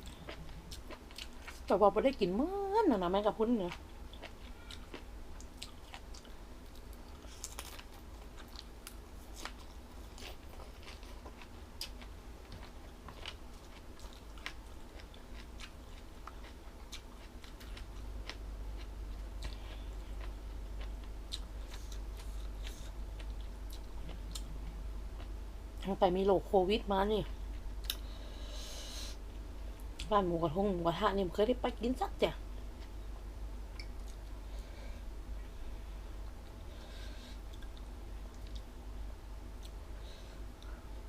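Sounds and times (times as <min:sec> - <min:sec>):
person chewing crunchy food: 0:00.0 - 0:01.7, 0:03.6 - 0:25.4, 0:27.4 - 0:29.3
low hum: 0:00.0 - 0:41.0.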